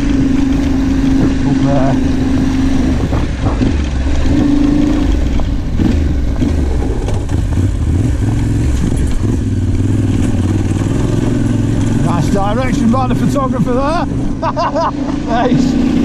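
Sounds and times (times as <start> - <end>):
motorcycle engine on dirt track: 0.0 - 16.0
knocks from rough ground: 2.8 - 12.0.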